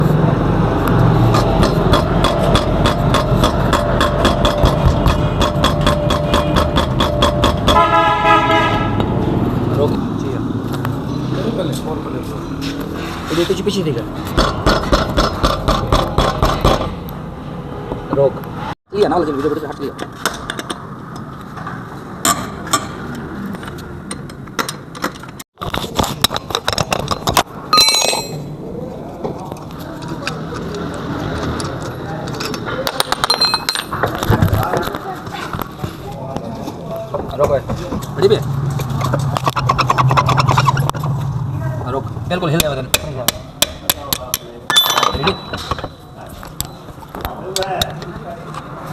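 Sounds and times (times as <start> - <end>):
fast mechanical knocking: 1.3 - 7.9.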